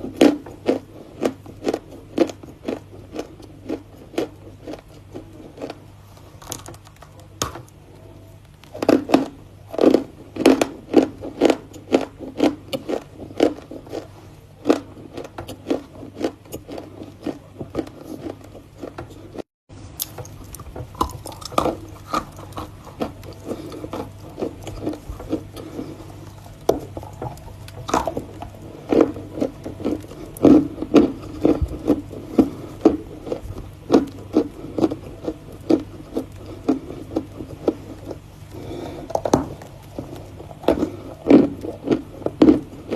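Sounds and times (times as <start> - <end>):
low steady hum: 0.0 - 42.9.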